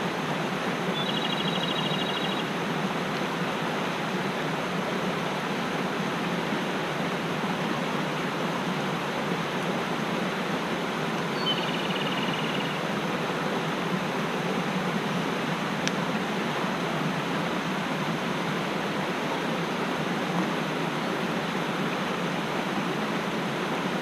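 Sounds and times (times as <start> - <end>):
mountain stream rushing: 0.0 - 24.0
small bird trilling: 1.0 - 2.4, 11.3 - 12.8.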